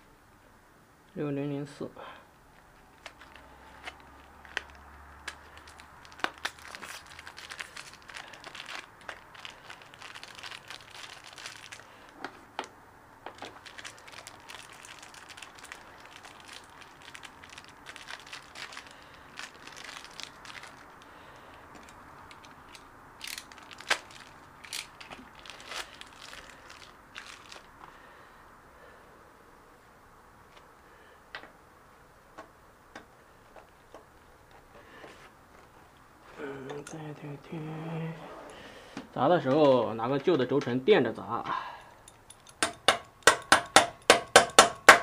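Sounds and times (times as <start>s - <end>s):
packaging crinkling and rustling: 2.6s - 12.5s, 13.3s - 27.8s.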